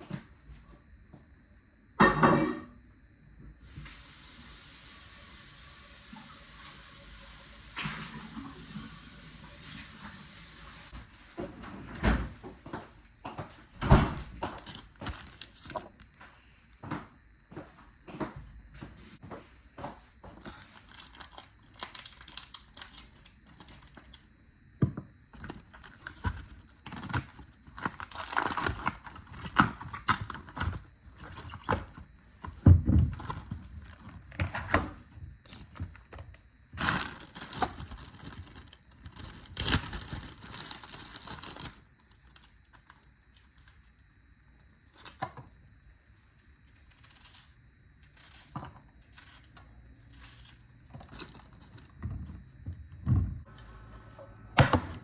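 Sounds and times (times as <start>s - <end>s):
packaging crinkling and rustling: 14.1s - 16.1s, 20.3s - 24.2s, 25.4s - 43.9s, 46.6s - 52.5s.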